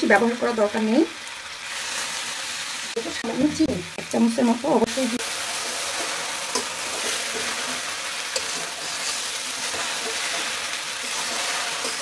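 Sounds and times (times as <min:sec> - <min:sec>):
noodles sizzling in a pan: 0:00.0 - 0:12.0
metal spoon tapping a pan: 0:05.6 - 0:10.5.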